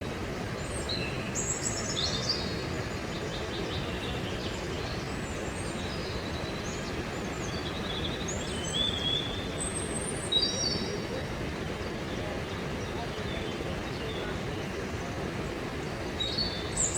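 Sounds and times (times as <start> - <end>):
waterfall roaring: 9.2 - 16.9.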